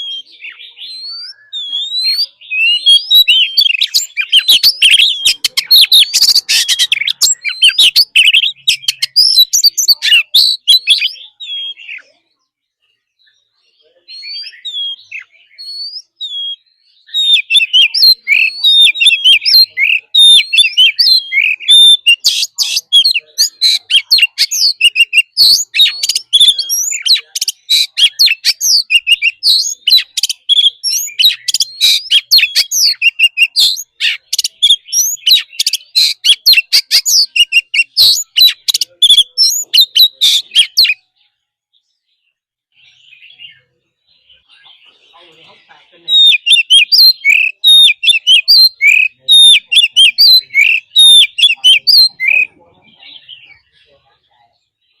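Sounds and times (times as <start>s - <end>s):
bird singing whistles and chatter: 0.0s - 55.0s.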